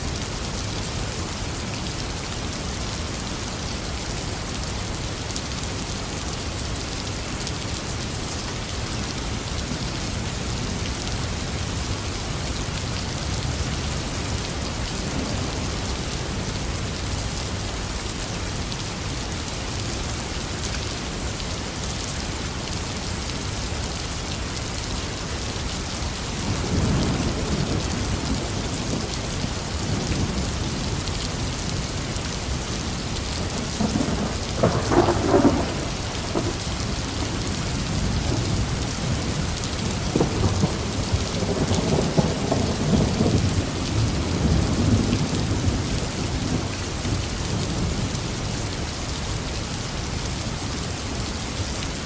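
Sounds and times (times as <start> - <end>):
heavy rain falling: 0.0 - 52.0
thunder rumbling low: 33.5 - 36.6.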